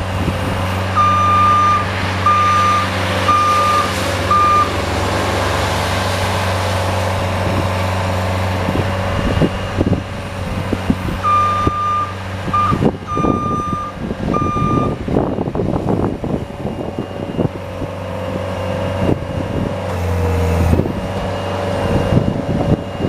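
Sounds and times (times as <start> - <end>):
vehicle engine running: 0.0 - 23.0
reverse warning beeps: 1.0 - 4.7, 11.2 - 15.0.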